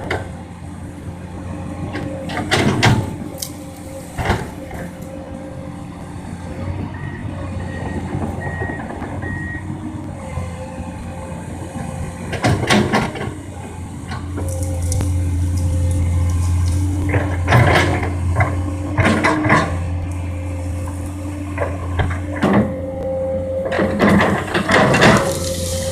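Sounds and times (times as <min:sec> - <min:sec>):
excavator diesel engine running: 0:00.0 - 0:25.9
machine knocks and clanks: 0:12.3 - 0:13.4, 0:17.0 - 0:19.9.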